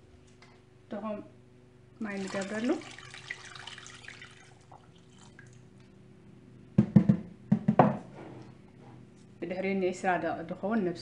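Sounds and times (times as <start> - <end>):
sharp knocks: 6.8 - 8.0.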